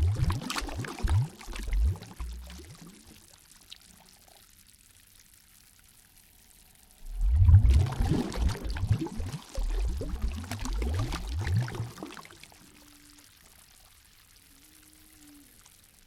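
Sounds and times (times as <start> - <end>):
water gurgling and splashing: 0.0 - 4.2, 7.0 - 13.3.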